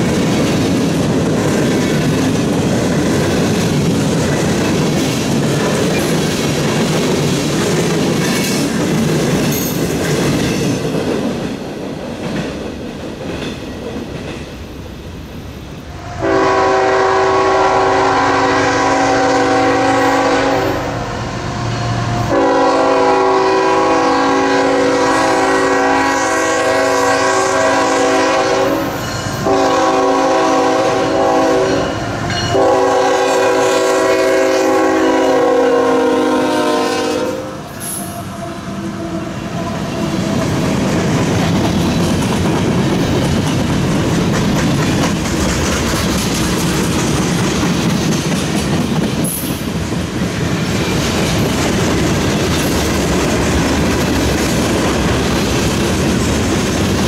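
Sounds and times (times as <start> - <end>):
diesel locomotives passing: 0.0 - 57.0
locomotive horn blasts: 16.1 - 21.0, 22.2 - 39.9.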